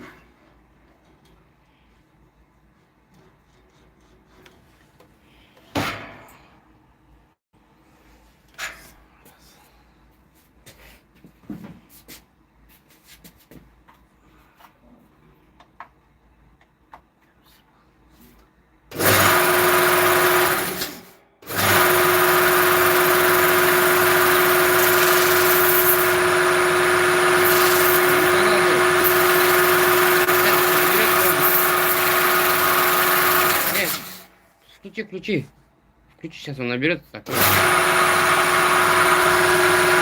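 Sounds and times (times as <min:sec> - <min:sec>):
power tool motor whining: 0:19.0 - 0:34.3, 0:37.3 - 0:40.0.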